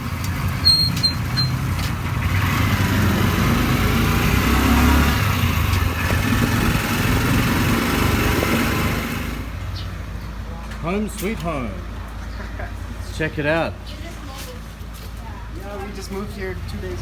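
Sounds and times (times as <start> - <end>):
vehicle engine rumbling: 0.0 - 17.0
short high beeps: 0.7 - 1.6.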